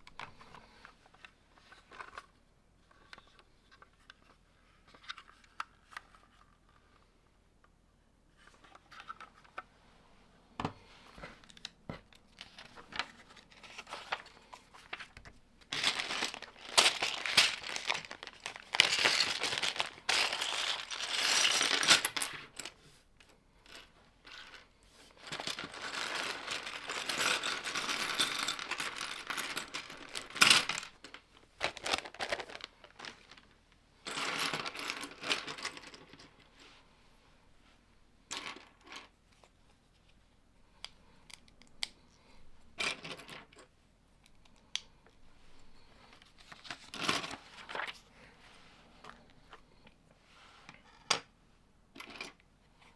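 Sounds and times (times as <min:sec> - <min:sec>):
plastic pieces clattering: 0:12.4 - 0:22.8, 0:23.6 - 0:33.5.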